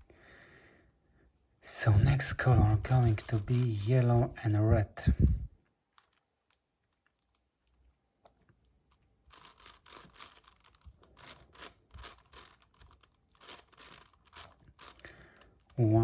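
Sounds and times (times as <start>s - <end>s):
puzzle cube layer turns clicking: 2.7s - 3.9s, 5.9s - 7.9s, 8.5s - 15.8s.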